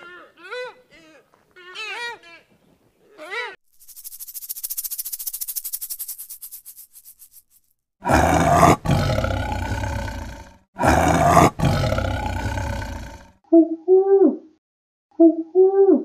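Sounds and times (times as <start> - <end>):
snake rattle: 3.6 - 10.6
tiger roaring: 8.0 - 13.4.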